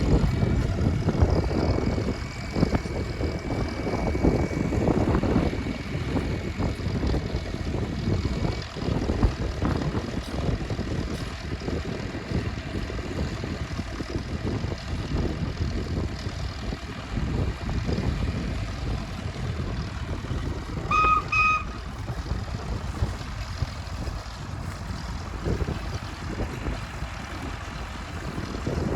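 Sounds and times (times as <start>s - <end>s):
machinery rumbling: 0.0s - 28.9s
steam engine whistle toots: 20.8s - 21.8s.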